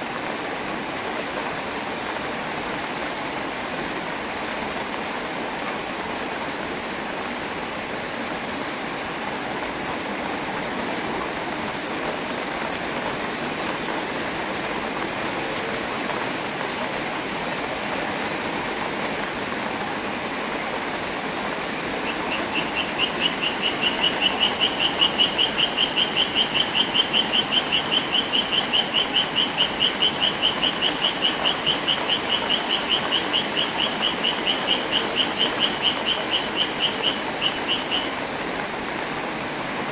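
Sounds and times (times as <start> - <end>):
steady rain falling: 0.0 - 39.9
high repeating call: 22.0 - 38.2.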